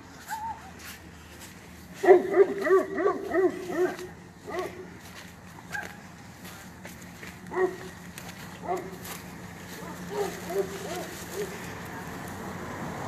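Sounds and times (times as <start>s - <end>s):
dog barking: 2.0s - 4.8s, 7.5s - 7.9s, 8.6s - 9.0s, 9.8s - 11.6s.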